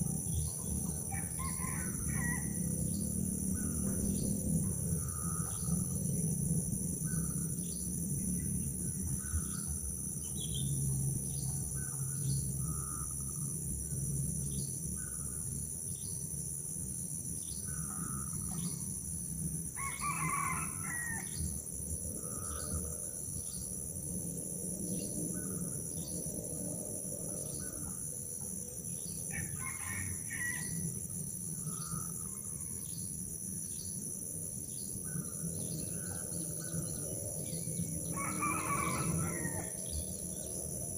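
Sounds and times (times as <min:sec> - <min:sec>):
rooster crowing: 0:01.0 - 0:02.7, 0:19.8 - 0:21.4, 0:29.3 - 0:30.8, 0:38.1 - 0:40.0.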